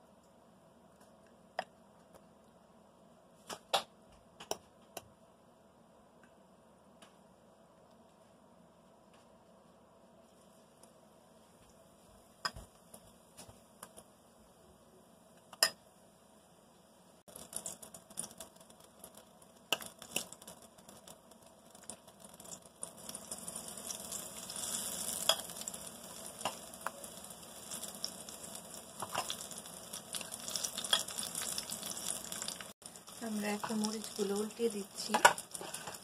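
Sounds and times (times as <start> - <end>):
chillies frying in hot oil: 17.2 - 36.0.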